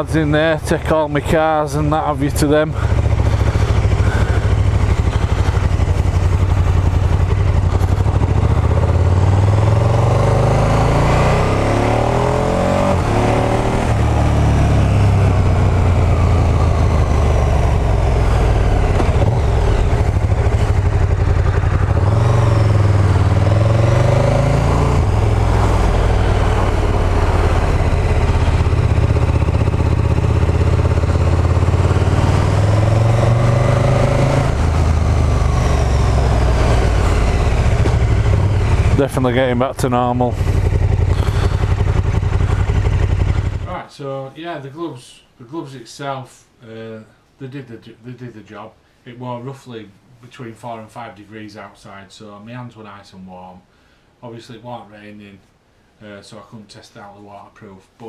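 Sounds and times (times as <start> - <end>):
motorcycle engine running: 0.0 - 43.7
road and wind noise: 0.0 - 43.7.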